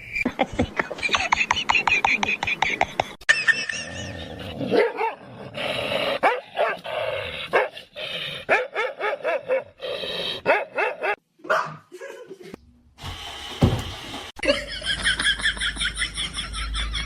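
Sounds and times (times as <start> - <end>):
dog barking and yipping: 6.2 - 6.8, 8.5 - 9.8, 10.4 - 11.8.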